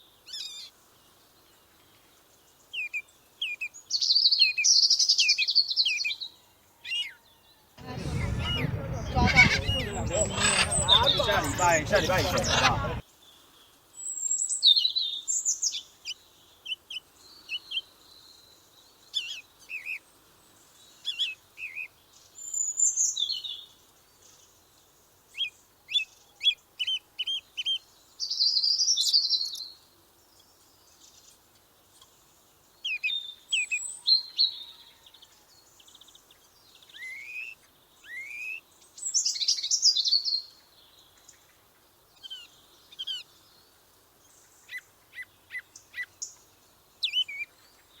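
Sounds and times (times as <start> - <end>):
small birds singing: 7.8 - 13.0.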